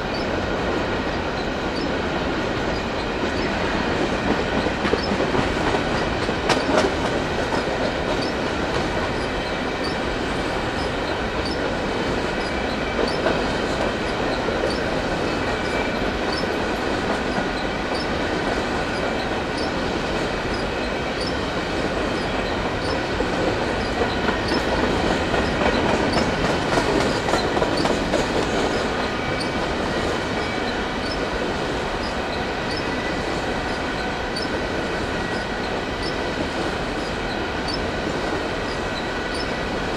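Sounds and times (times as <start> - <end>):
train wheels rumbling on track: 0.0 - 39.9
rhythmic clicking of wheels: 1.0 - 39.9
thin wheel squeal: 10.8 - 11.6, 14.1 - 14.8, 15.6 - 16.5, 18.9 - 19.8, 20.5 - 21.4, 38.6 - 39.5.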